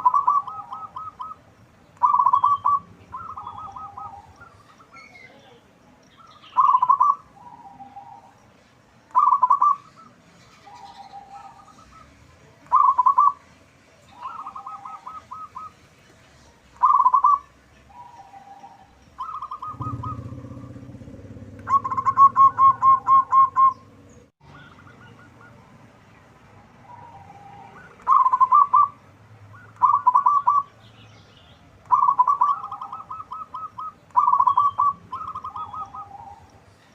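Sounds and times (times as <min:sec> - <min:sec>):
doves cooing: 0:00.0 - 0:05.6, 0:06.2 - 0:08.4, 0:09.1 - 0:13.4, 0:14.1 - 0:15.9, 0:16.8 - 0:25.7, 0:26.8 - 0:30.8, 0:31.8 - 0:36.9
low rumble: 0:19.6 - 0:24.3.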